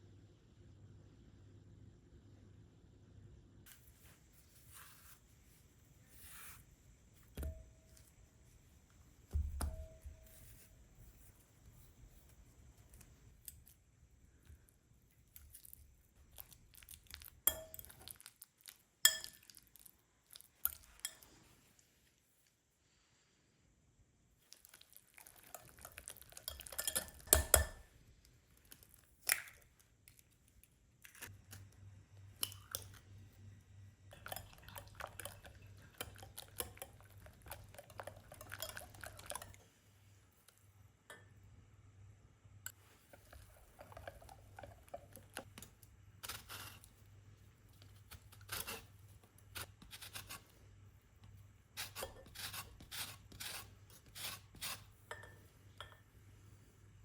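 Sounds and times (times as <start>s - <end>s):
dishes and utensils clinking: 55.0s - 56.0s.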